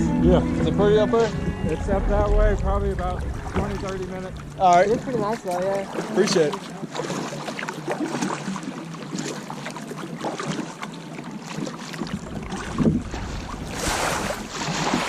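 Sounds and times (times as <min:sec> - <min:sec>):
wind rumble on microphone: 0:00.0 - 0:05.9, 0:12.0 - 0:15.0
kayak paddle splashing water: 0:01.6 - 0:15.0.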